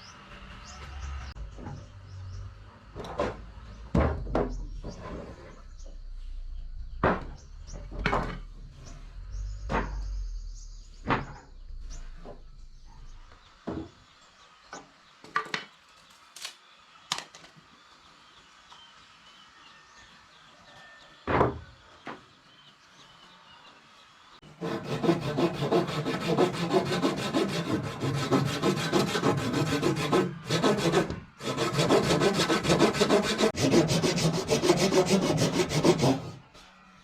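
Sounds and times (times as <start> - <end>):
wood knocking and clunking: 3.0 - 5.1, 6.9 - 8.6, 9.6 - 10.3, 11.0 - 11.6
low rumble: 4.2 - 13.6.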